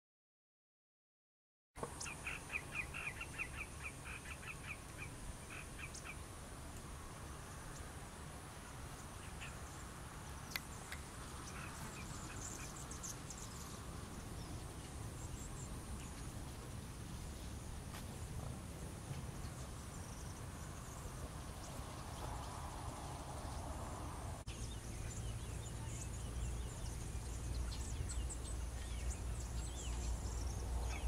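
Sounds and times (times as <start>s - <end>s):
birds calling harshly: 1.9s - 6.2s, 10.4s - 16.4s.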